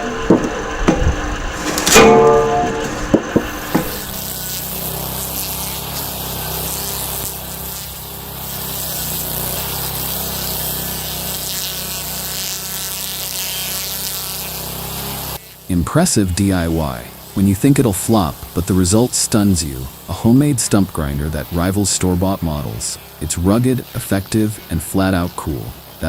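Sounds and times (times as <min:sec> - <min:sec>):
sharp knocks: 0:00.0 - 0:04.1
cutting machine grinding wood: 0:00.0 - 0:26.0.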